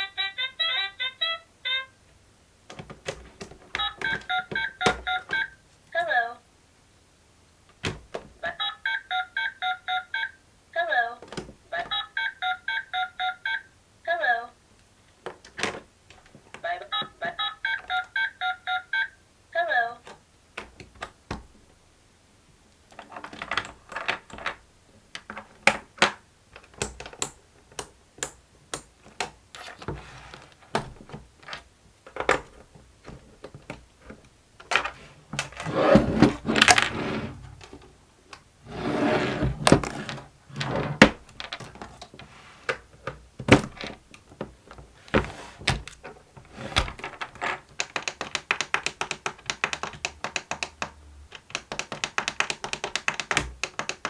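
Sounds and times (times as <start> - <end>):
plastic toy clicks and taps: 26.0 - 29.4, 47.7 - 54.0
plastic scraping: 29.1 - 37.8, 38.7 - 42.8
rapid clicking: 47.7 - 54.0.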